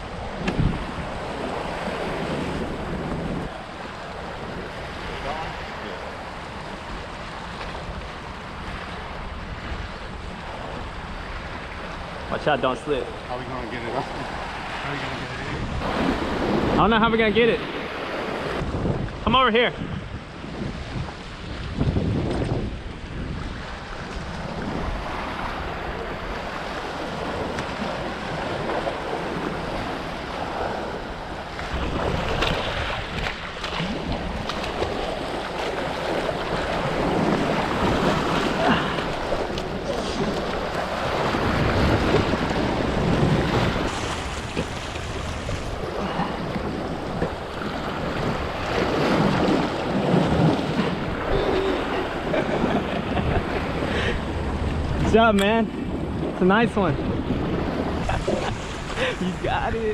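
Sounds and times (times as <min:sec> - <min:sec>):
surf washing against jetty: 0:00.0 - 0:59.9
wind buffeting microphone: 0:00.0 - 0:59.9.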